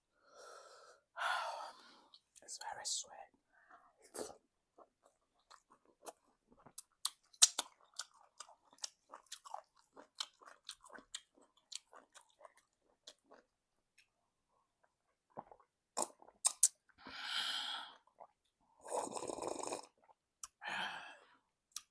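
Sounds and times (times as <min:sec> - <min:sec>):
wet chewing mouth clicks: 0:04.8 - 0:13.4, 0:15.3 - 0:16.8.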